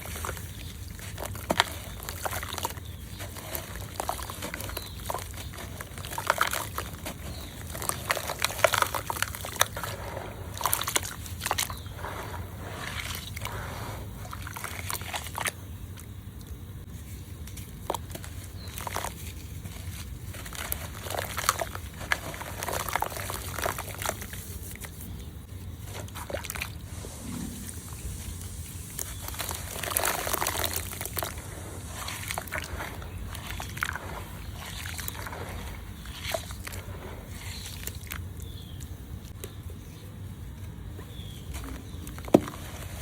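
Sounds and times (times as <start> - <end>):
hands crumbling gritty dirt: 0.0 - 13.7, 28.4 - 39.5
wet dirt squishing: 0.0 - 16.5, 17.4 - 39.6, 41.0 - 43.0.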